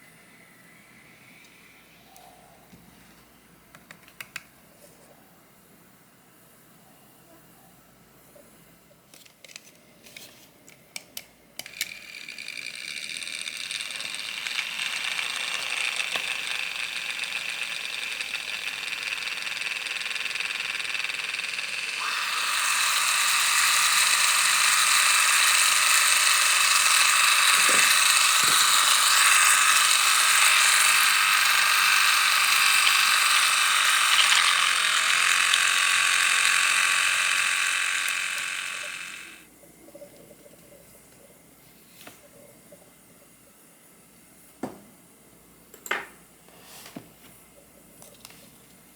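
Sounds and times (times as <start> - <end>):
toy blender motor whirring: 11.6 - 39.5.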